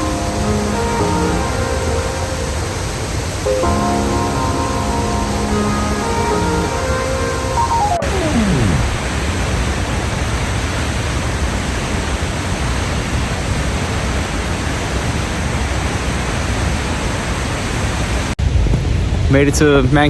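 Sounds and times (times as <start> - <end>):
falling musical tone: 3.5 - 9.2.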